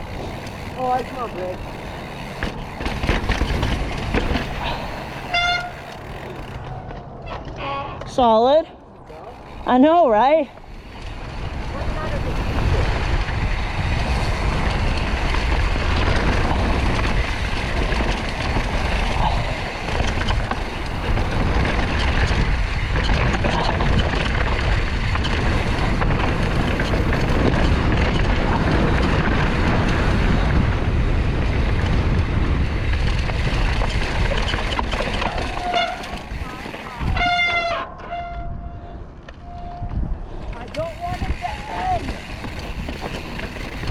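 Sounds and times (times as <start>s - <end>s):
mountain bike rolling on rocks: 0.0s - 7.1s, 9.1s - 37.8s, 39.3s - 43.9s
wind over microphone: 10.3s - 43.9s.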